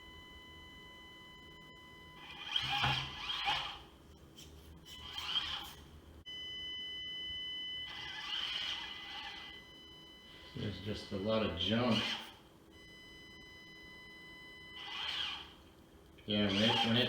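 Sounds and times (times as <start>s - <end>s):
electric motor whine: 2.1s - 3.9s, 4.9s - 5.9s, 7.7s - 12.4s, 14.3s - 15.6s, 16.3s - 17.0s
motor and gear noise bursts: 2.2s - 3.9s, 7.9s - 9.6s, 10.5s - 12.4s, 14.7s - 15.6s, 16.3s - 17.0s.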